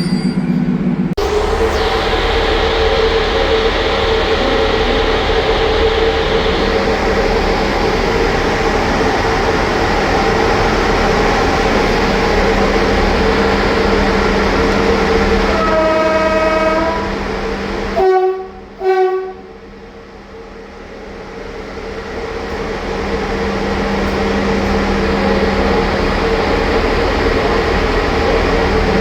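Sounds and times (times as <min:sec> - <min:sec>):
electric locomotive rumbling: 0:00.0 - 0:29.0
train horn blasts: 0:13.0 - 0:19.6.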